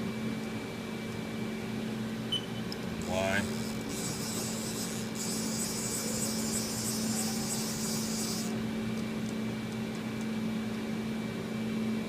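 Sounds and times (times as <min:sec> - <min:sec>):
milling machine humming: 0:00.0 - 0:12.0.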